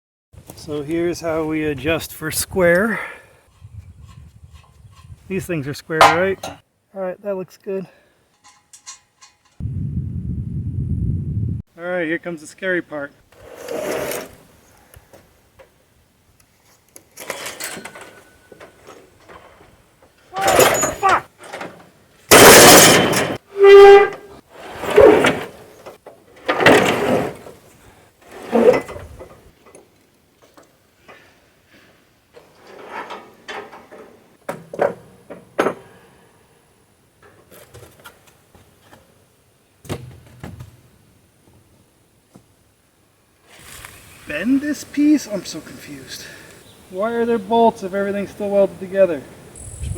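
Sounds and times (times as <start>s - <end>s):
steel parts scraping and knocking: 3.5s - 5.4s, 8.3s - 9.6s, 17.2s - 19.6s
metal parts scraping: 8.3s - 9.6s, 17.1s - 19.5s, 20.4s - 21.7s, 22.3s - 23.4s
metallic clanks: 8.3s - 9.6s, 20.4s - 23.4s
metal squeal: 23.5s - 24.2s.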